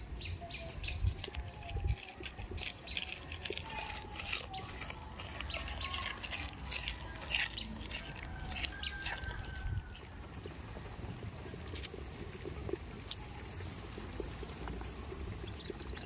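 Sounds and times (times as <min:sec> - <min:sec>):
small birds chirping: 0:00.0 - 0:10.6, 0:14.6 - 0:16.0
rustling: 0:00.5 - 0:10.4.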